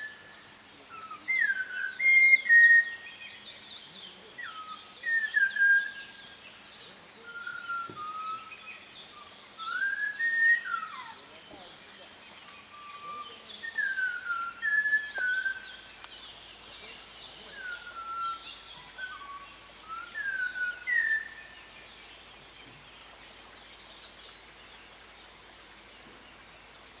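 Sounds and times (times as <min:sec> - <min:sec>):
small birds chirping faintly: 0:00.0 - 0:27.0
bird whistling: 0:07.4 - 0:08.6, 0:09.6 - 0:11.2, 0:12.7 - 0:15.7, 0:17.6 - 0:21.4.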